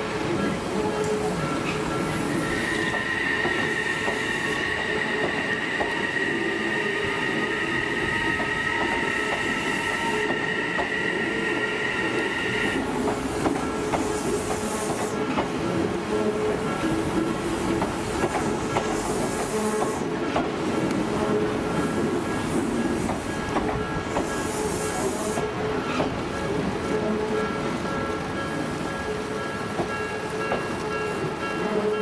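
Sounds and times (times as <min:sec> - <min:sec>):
train wheels squealing: 0:01.5 - 0:12.8.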